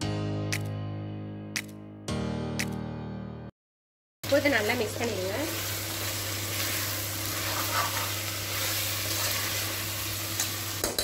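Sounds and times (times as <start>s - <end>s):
sharp clicks: 1.6s - 1.8s, 2.6s - 2.8s
meat sizzling in hot oil: 4.2s - 11.0s
spatula scraping a pot: 6.1s - 9.7s.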